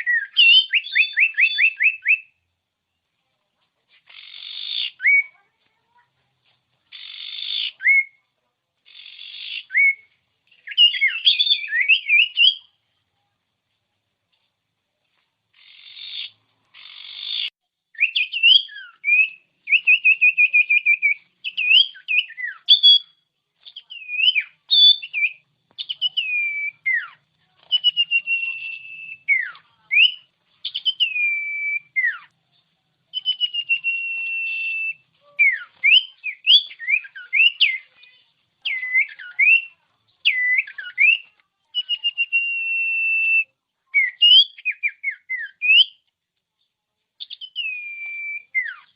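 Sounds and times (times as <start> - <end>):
bird singing whistled notes: 0.0 - 2.4, 4.1 - 5.4, 6.9 - 8.2, 8.9 - 12.7, 15.6 - 32.3, 33.1 - 46.0, 47.2 - 48.9.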